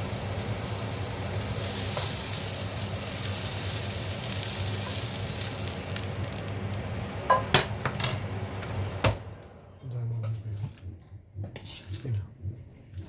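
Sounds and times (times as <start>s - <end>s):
food sizzling in a hot pan: 0.0s - 8.9s
low steady hum: 0.0s - 13.0s.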